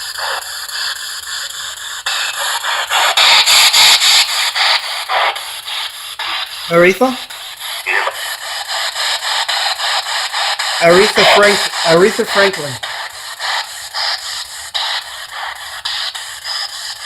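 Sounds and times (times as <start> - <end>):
radio static bursts: 6.6 - 7.3, 10.8 - 12.8
fragments of broadcast sound: 6.7 - 7.3, 10.8 - 12.8.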